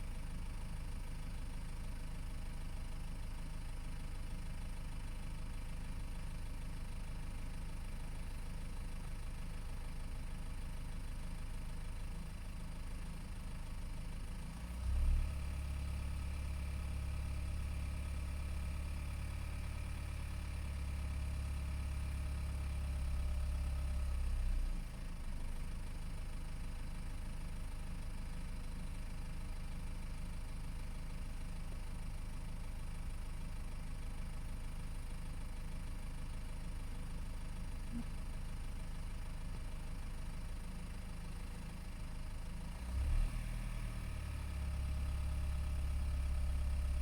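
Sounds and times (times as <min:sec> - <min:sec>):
diesel engine idling: 0:44.2 - 0:47.0.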